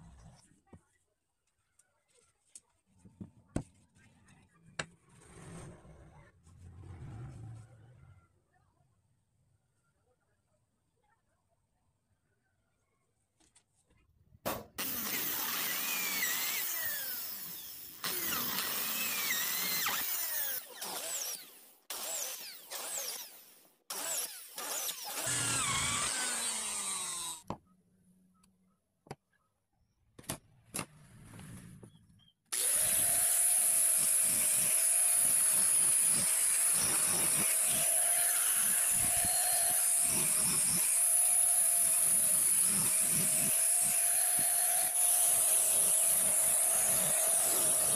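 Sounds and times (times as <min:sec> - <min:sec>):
electric drill boring wood: 0:14.8 - 0:27.4, 0:32.5 - 0:47.9
angle grinder sanding wood: 0:32.6 - 0:47.9.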